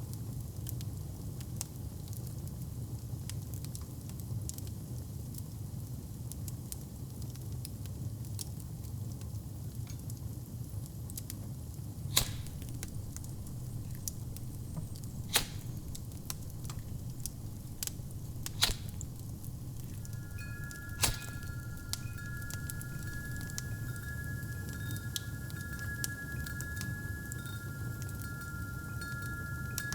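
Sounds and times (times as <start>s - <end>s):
wood fire rumbling and crackling: 11.9s - 29.9s
fire popping: 12.0s - 29.9s
wind chime ringing: 12.0s - 29.9s.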